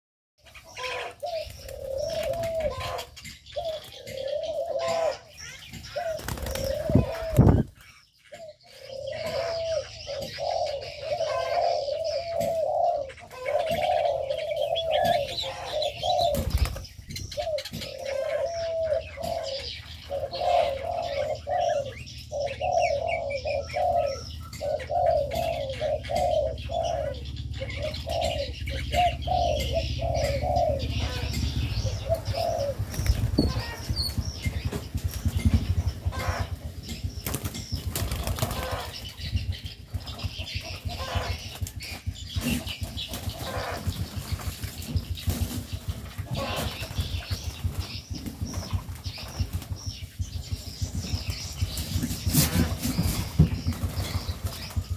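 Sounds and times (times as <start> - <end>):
high bird chirps: 0.4 - 42.6
wings flapping and rustling: 0.8 - 4.3, 5.4 - 8.0, 13.3 - 18.2, 30.8 - 54.9
bird repeating low call: 17.4 - 34.2.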